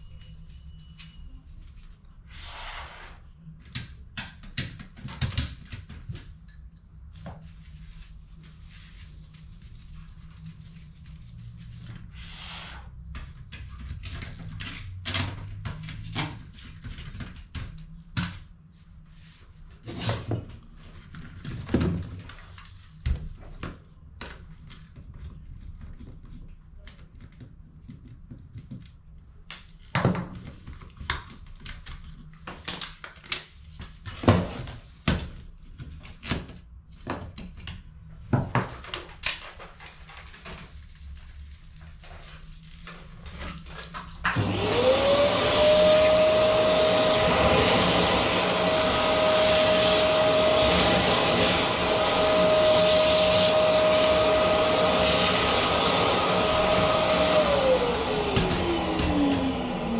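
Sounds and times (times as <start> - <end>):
vacuum cleaner motor: 44.3 - 59.9.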